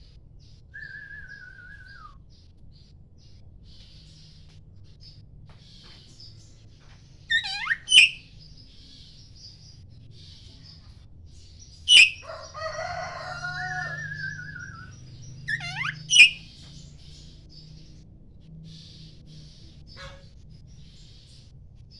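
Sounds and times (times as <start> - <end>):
faint chirping of small birds: 0.0 - 21.9
robin whistled song: 0.8 - 2.2, 7.3 - 8.6, 11.9 - 12.3, 13.4 - 16.6.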